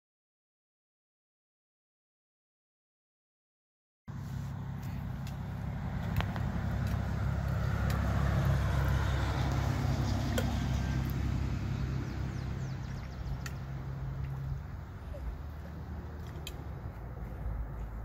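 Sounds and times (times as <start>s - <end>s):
vehicle engine running: 4.1s - 18.0s.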